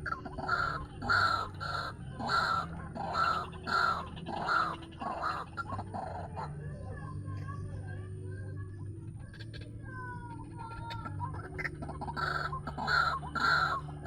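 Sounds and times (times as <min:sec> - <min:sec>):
waterhen calling harsh notes: 0:00.3 - 0:06.2, 0:12.0 - 0:13.9.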